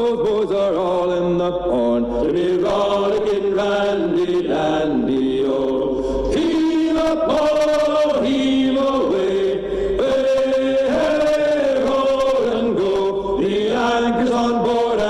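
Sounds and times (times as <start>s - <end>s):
men singing in chorus: 0.0s - 15.0s.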